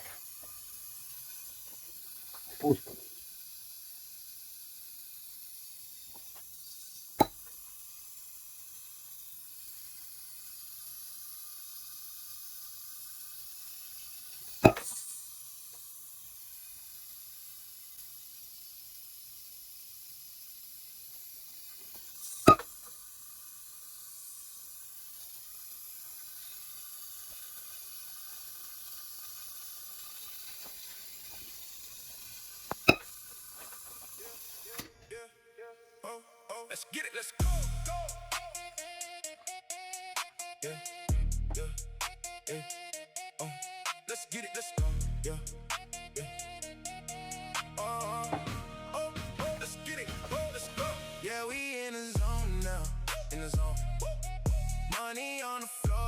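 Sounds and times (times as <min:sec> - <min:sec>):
faint steady hiss: 0:00.0 - 0:41.0, 0:42.0 - 0:55.9.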